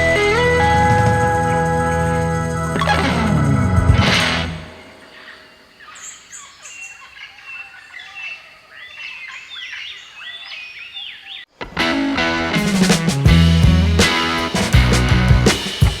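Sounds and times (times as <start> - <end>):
music: 0.0 - 4.7, 11.6 - 16.0
birds chirping and whistling: 0.0 - 11.5.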